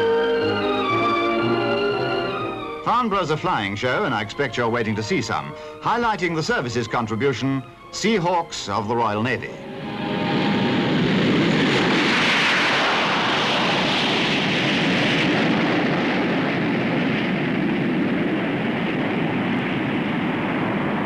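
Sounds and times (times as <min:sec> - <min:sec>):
jet aircraft flying past: 0:09.4 - 0:21.0.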